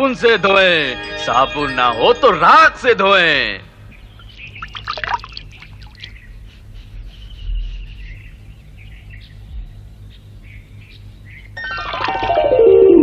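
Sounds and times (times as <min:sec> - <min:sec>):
low steady hum: 0:00.8 - 0:13.0
faint birds chirping: 0:03.6 - 0:11.6.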